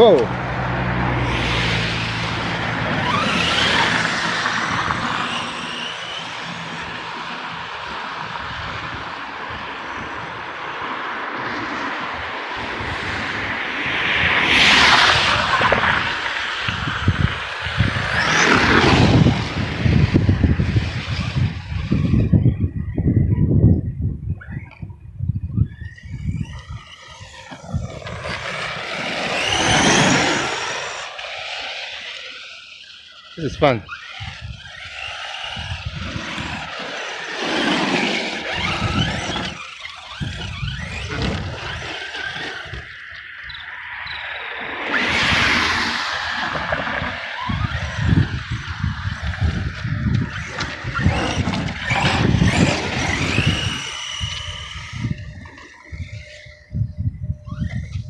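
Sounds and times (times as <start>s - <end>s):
tyres crackling over ground: 0.0s - 22.7s, 25.6s - 56.7s
rc truck motor whine: 0.0s - 58.0s.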